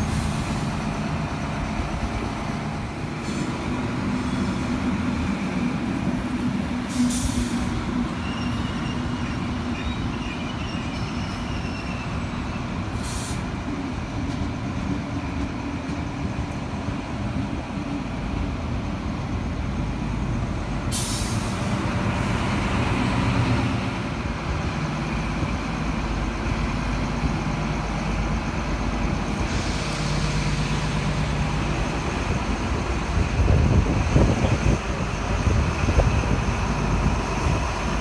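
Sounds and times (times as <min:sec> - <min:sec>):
train rumbling past: 0:00.0 - 0:38.0
compressed air hisses: 0:06.9 - 0:07.7, 0:12.9 - 0:13.5, 0:20.9 - 0:21.7.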